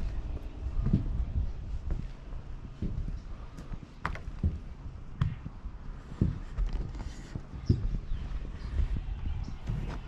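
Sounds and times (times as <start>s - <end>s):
footsteps thudding: 0.8s - 8.0s.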